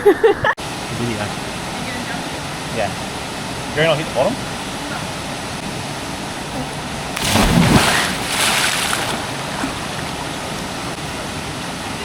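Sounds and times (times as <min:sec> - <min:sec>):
waterfall rushing: 0:00.6 - 0:12.0
loud splash into water: 0:07.2 - 0:10.7.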